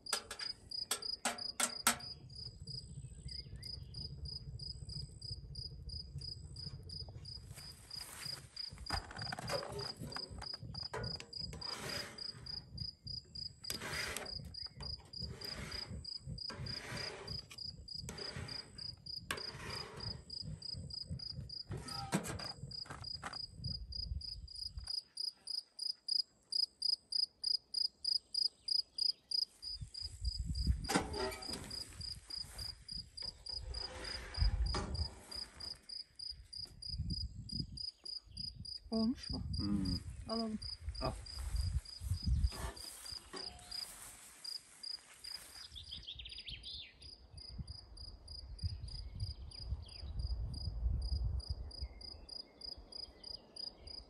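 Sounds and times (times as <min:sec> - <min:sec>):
rustling noise: 0:07.3 - 0:12.6, 0:29.5 - 0:36.5, 0:40.0 - 0:46.0
insect chirping: 0:22.7 - 0:30.7.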